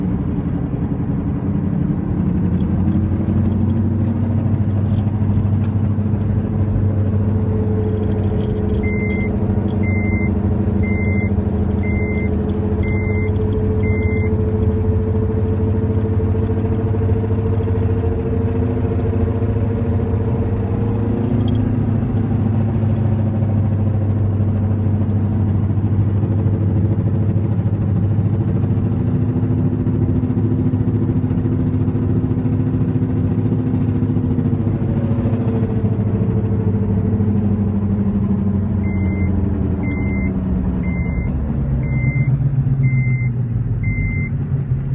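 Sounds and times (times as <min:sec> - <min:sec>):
wheel drone while driving: 0:00.0 - 0:44.9
short high beeps: 0:08.8 - 0:14.4, 0:38.9 - 0:42.3, 0:42.9 - 0:44.3.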